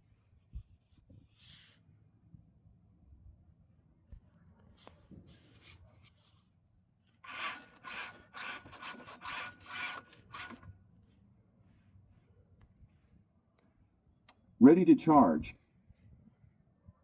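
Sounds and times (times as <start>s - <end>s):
rhythmic scraping strokes: 7.3s - 10.7s.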